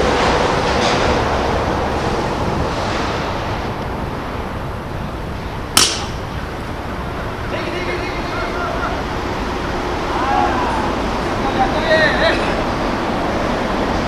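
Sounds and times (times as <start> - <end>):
wind buffeting microphone: 0.0 - 14.0
bat cracking ball: 5.7 - 6.4.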